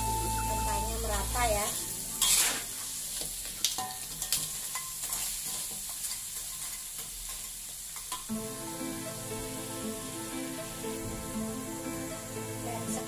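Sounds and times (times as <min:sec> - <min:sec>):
background music: 0:00.0 - 0:03.1, 0:08.3 - 0:13.0
crab sizzling in a wok: 0:00.0 - 0:13.0
metal spatula scraping a pan: 0:01.8 - 0:08.3.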